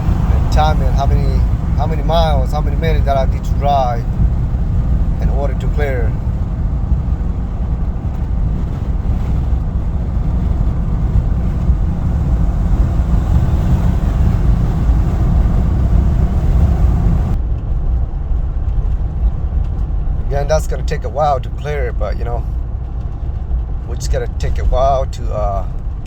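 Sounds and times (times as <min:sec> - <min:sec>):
in-cabin engine and tyre rumble: 0:00.0 - 0:26.0.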